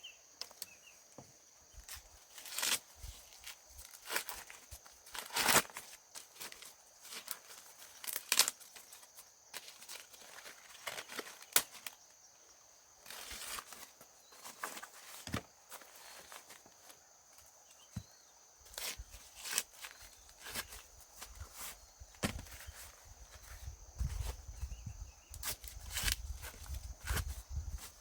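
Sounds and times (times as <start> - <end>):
dry corn husks rustling: 0.4 - 12.2, 13.0 - 28.0.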